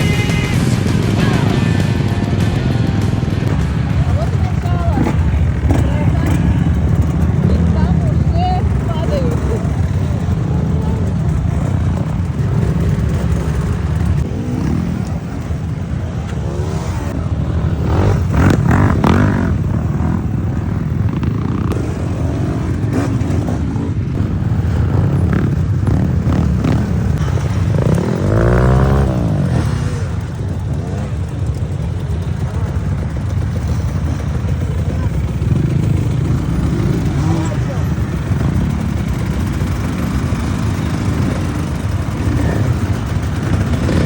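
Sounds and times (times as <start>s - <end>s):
steady low rumble: 0.0s - 14.3s
motorcycle engine revving: 0.0s - 44.0s.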